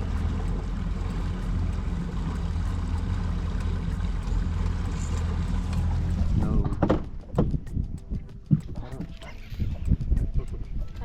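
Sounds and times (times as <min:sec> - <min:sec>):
boat motor droning: 0:00.0 - 0:10.5
water noise: 0:00.0 - 0:11.0
wind noise: 0:05.6 - 0:11.0.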